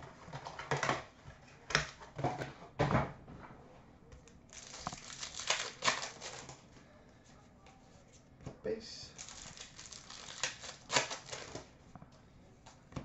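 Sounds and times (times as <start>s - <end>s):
wrapper crinkling and tearing: 4.5s - 6.6s, 9.2s - 11.7s.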